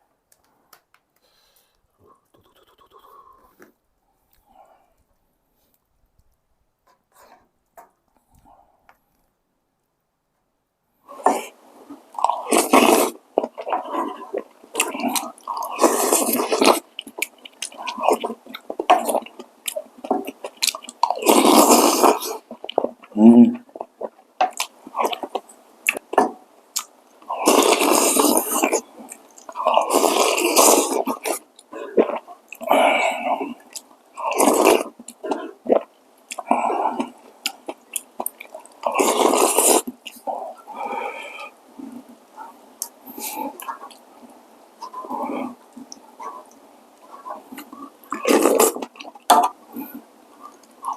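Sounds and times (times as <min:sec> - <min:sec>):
noodles slurping: 0:11.1 - 0:26.2, 0:26.8 - 0:44.1, 0:44.8 - 0:50.9
person chewing: 0:11.2 - 0:50.9.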